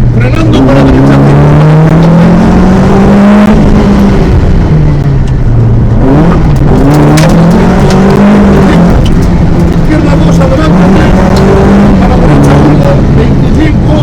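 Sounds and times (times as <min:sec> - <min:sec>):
car engine accelerating: 0:00.0 - 0:14.0
gear change: 0:00.0 - 0:14.0
sharp clicks: 0:06.4 - 0:08.2.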